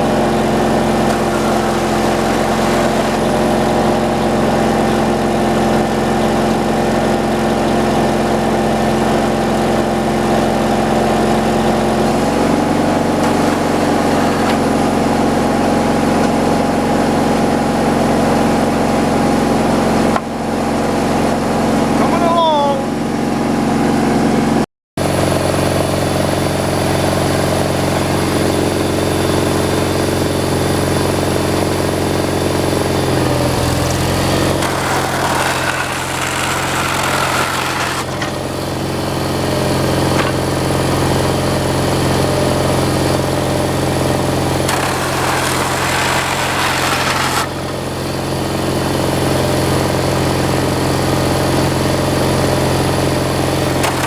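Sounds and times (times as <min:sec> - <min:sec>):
gasoline engine running: 0:00.0 - 0:54.0.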